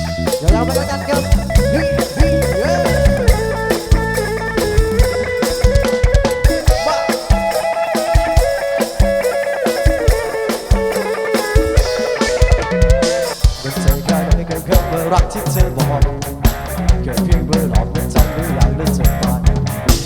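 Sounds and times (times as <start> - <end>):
bass line: 0.0 - 7.6, 11.6 - 20.0
sliding lead melody: 0.0 - 17.2
drum kit beat: 0.0 - 20.0.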